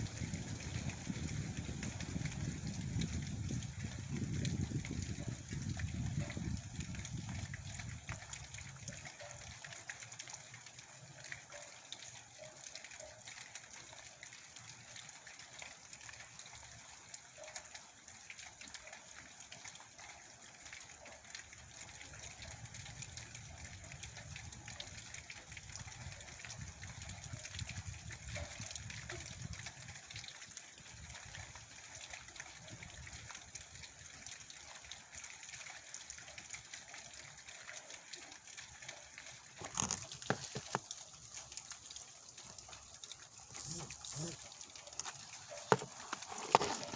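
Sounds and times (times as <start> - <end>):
rain falling: 0.0 - 18.8, 33.3 - 46.9.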